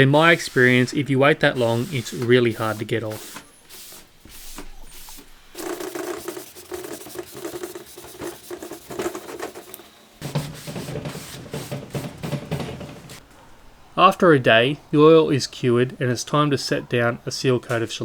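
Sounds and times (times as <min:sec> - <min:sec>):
steel wool rubbing wood: 0:00.0 - 0:13.2.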